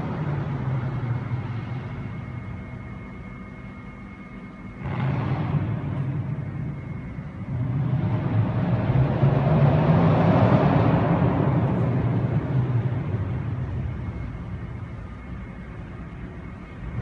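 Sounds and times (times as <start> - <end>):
car engine exhaust revving: 4.6 - 17.0.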